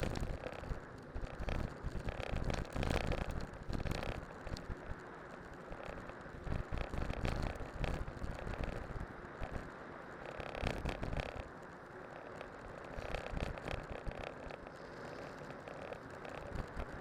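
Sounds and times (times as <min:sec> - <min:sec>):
wind buffeting microphone: 0:00.0 - 0:11.5
bike rattling and tyres crunching: 0:00.0 - 0:17.0.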